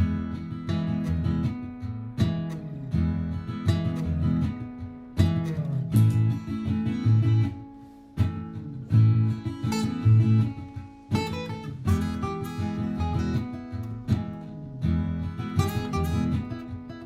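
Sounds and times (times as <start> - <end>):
acoustic guitar strumming chords: 0.0 - 17.0
looped guitar parts: 0.0 - 17.0.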